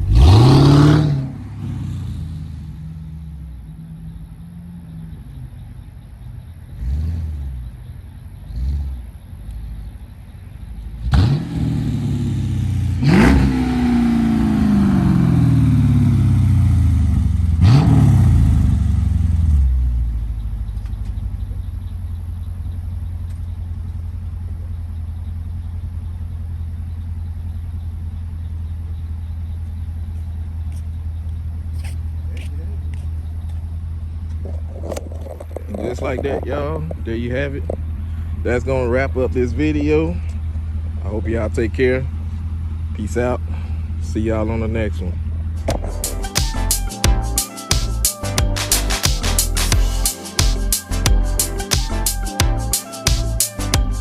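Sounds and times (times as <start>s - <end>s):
car engine revving and idling: 0.0s - 54.0s.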